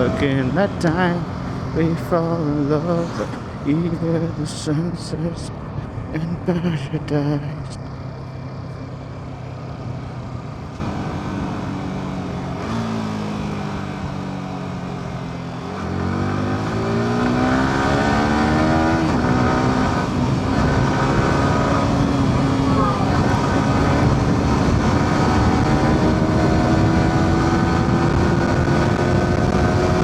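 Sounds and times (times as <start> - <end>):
motorcycle engine revving: 10.8 - 30.0.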